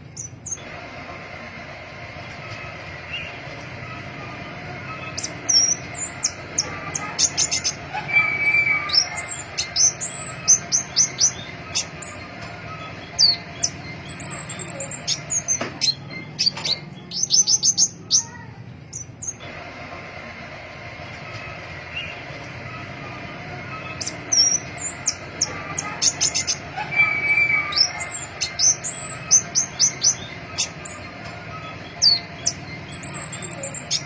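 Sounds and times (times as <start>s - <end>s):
bird chirping: 4.9s - 19.4s, 23.8s - 34.0s.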